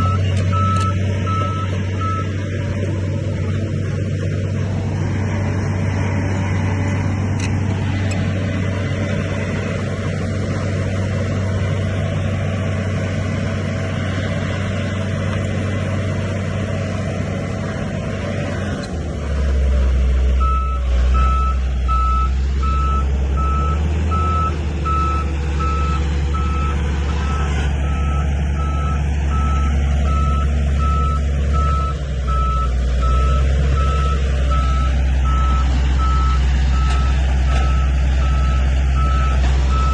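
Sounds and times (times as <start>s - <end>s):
reversing alarm beeping: 0.0s - 2.3s, 20.4s - 39.9s
heavy machine diesel engine running: 0.0s - 39.9s.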